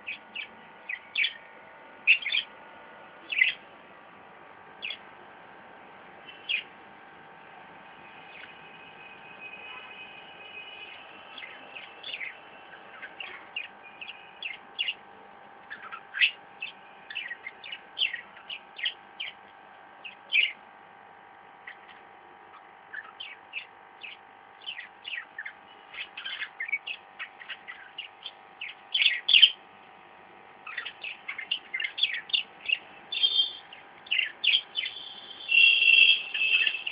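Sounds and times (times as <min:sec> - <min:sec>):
faint steady hum: 0:00.0 - 0:36.9
parrots chirping: 0:00.1 - 0:01.4, 0:02.0 - 0:02.5, 0:03.2 - 0:03.6, 0:04.8 - 0:05.0, 0:06.2 - 0:06.7, 0:08.1 - 0:15.0, 0:15.6 - 0:19.4, 0:20.0 - 0:20.6, 0:21.6 - 0:29.6, 0:30.6 - 0:36.9.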